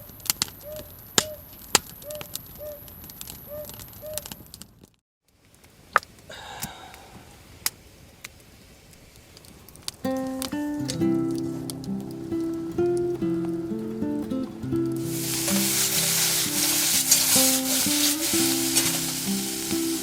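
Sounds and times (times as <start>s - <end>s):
campfire wood crackling: 7.6s - 20.0s.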